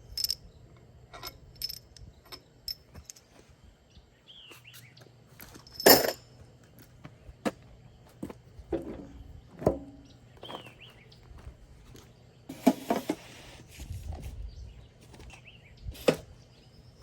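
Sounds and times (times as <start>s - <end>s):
metal tools clinking: 0.0s - 0.4s, 1.1s - 3.4s, 4.8s - 6.3s.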